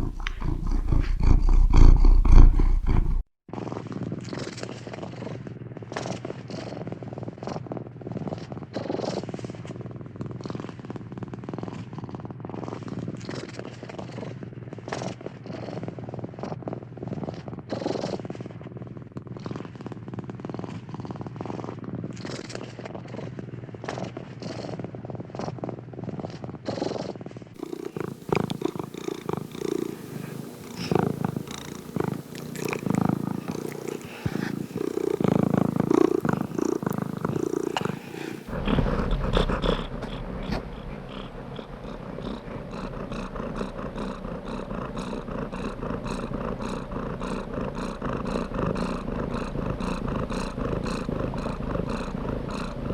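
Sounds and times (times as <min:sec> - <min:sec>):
cat purring: 0:00.0 - 0:03.3, 0:26.7 - 0:52.9.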